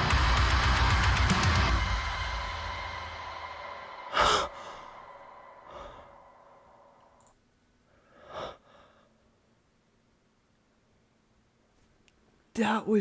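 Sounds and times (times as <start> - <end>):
heavy metal chord ringing: 0.0 - 6.4
soft breath: 3.6 - 7.2, 7.8 - 9.6
person sighing: 4.0 - 7.1.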